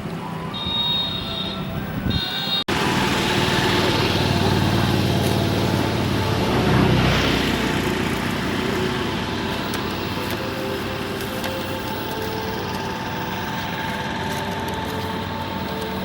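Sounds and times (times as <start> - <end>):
traffic hum: 0.0 - 16.0
vehicle engine running: 2.7 - 16.0.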